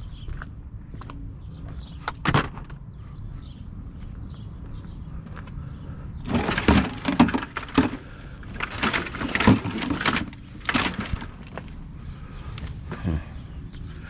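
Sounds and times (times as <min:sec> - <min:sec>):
scrap metal clanking: 0:06.3 - 0:11.7.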